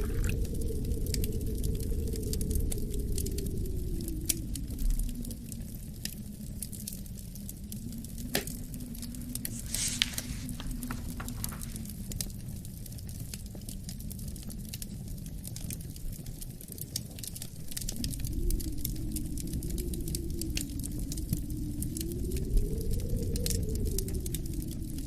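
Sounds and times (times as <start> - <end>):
low wind rumble: 0.0 - 16.1, 17.2 - 25.0
wood fire crackling: 0.0 - 25.0
fire hiss: 7.8 - 12.4.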